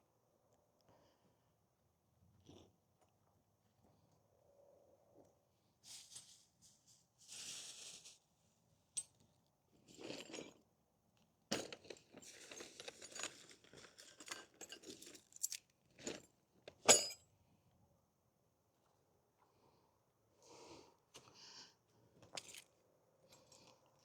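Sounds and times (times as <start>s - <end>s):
handling scrapes and rustles: 5.8s - 8.6s
clinks and knocks: 16.7s - 17.2s.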